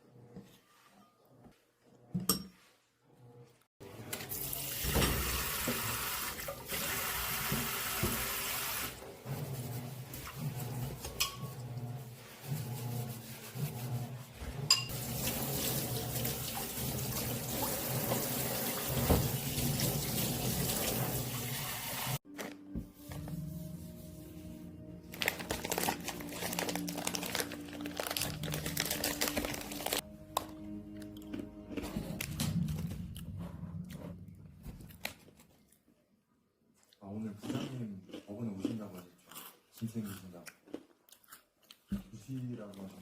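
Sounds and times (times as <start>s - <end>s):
tap water running into sink: 4.2s - 8.9s, 14.9s - 22.2s.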